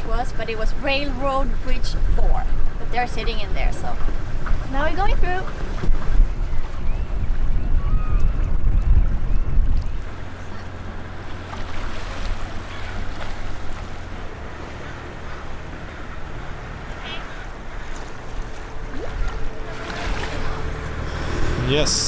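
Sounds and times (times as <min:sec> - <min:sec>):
boat engine running: 0:00.0 - 0:22.0
wind buffeting microphone: 0:00.0 - 0:22.0
bird calls: 0:12.4 - 0:19.9.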